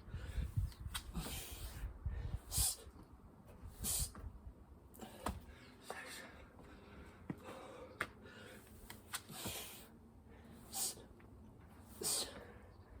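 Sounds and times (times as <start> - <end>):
person breathing hard: 5.0 - 11.1, 11.9 - 13.0.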